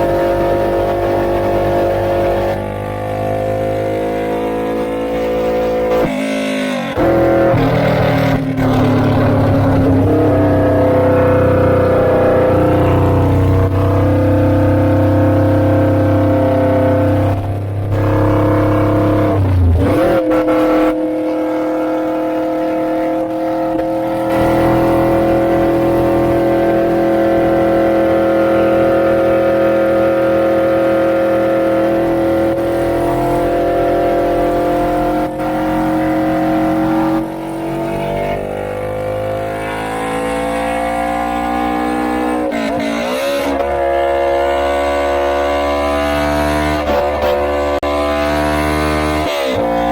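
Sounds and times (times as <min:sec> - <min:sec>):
motorcycle engine running: 0:00.0 - 0:37.8.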